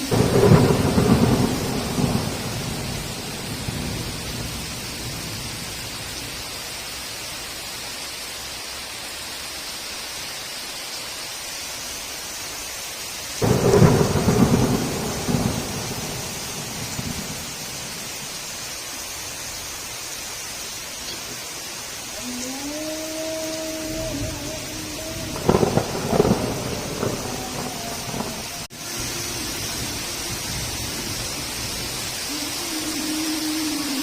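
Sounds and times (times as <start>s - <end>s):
thunder rumbling: 0.0s - 6.5s, 13.4s - 18.6s, 22.2s - 34.0s
heavy rain: 0.0s - 34.0s
thunder clap: 0.1s - 5.7s, 13.4s - 18.4s, 24.0s - 32.3s.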